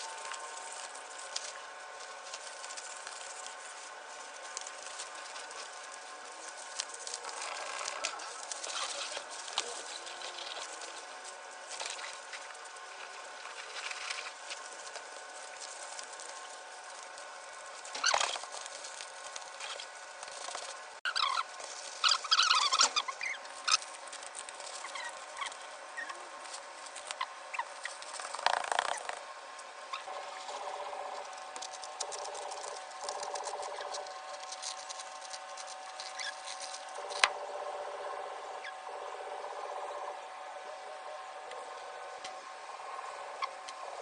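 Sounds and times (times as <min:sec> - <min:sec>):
birds scratching and pattering: 0:00.0 - 0:37.4
small birds chirping: 0:21.1 - 0:23.8.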